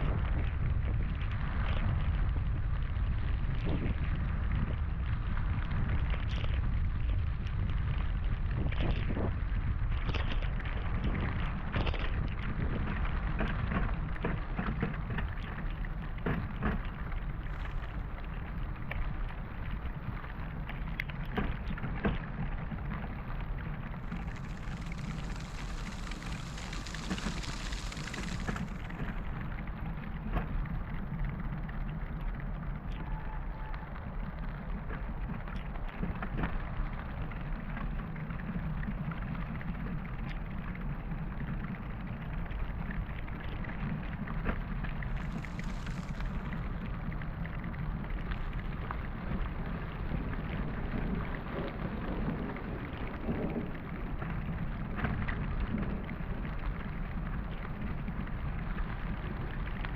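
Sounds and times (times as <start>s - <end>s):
low wind rumble: 0.0s - 59.9s
heavy rain falling: 24.0s - 29.5s, 45.0s - 47.4s
bright hiss: 24.1s - 29.1s.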